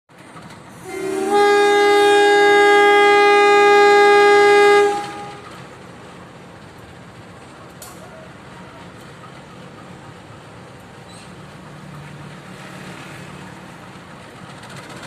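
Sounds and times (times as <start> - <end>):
low train rumble: 0.1 - 15.0
train horn blast: 0.7 - 5.8.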